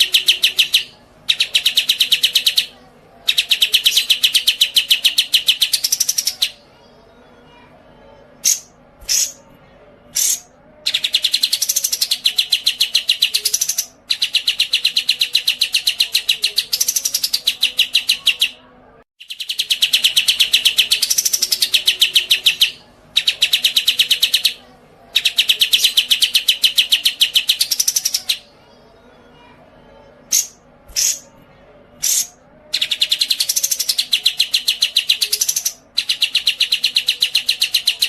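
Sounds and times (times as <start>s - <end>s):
songbird high-pitched trills: 0.0s - 6.6s.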